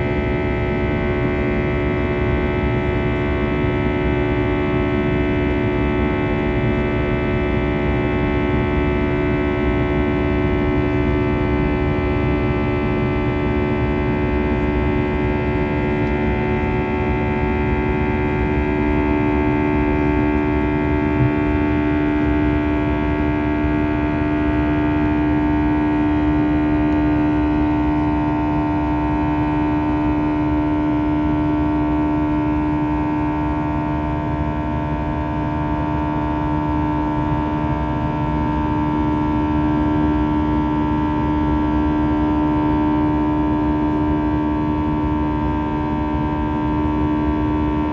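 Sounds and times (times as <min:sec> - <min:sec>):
jet cabin engine hum: 0:00.0 - 0:47.9.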